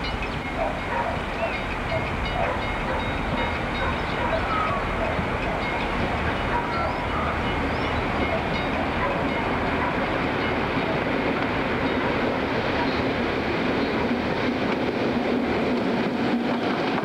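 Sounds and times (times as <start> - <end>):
diesel train engine rumbling: 0.0 - 17.0
train wheels on rails: 0.0 - 17.0.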